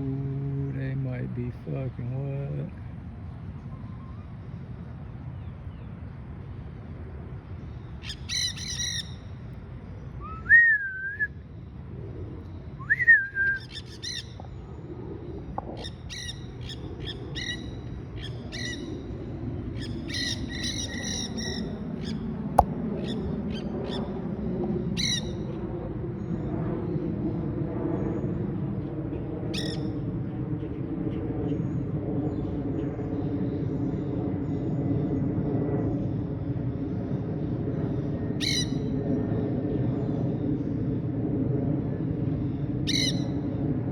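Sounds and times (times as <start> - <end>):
loud wavering whistled notes: 10.2 - 11.4, 12.8 - 13.7
parrots squawking: 42.9 - 43.2.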